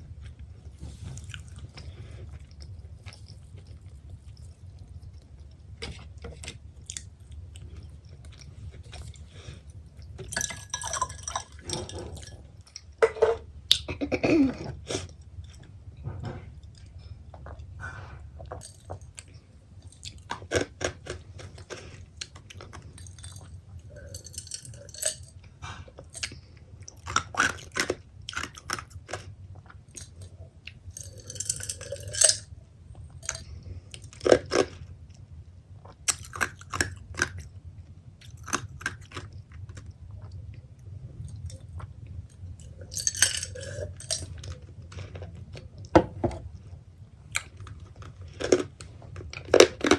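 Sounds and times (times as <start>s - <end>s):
chewing pizza: 0.0s - 13.0s, 14.6s - 49.9s.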